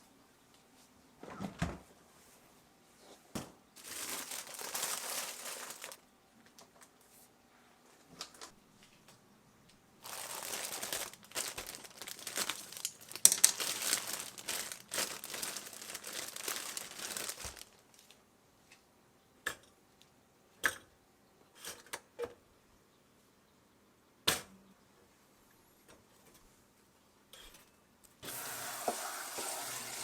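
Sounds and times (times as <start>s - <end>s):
packaging crinkling: 3.8s - 6.0s, 10.0s - 18.2s.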